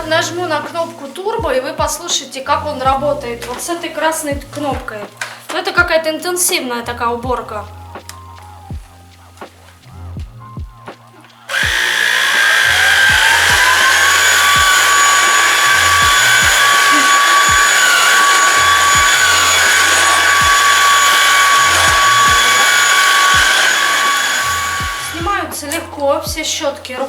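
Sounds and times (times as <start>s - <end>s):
vacuum cleaner motor whine: 11.5s - 25.4s.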